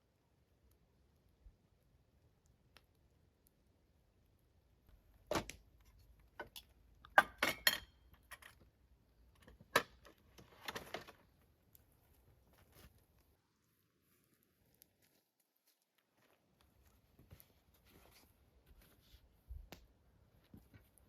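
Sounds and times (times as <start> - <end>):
objects knocking and clinking: 6.4 - 8.6.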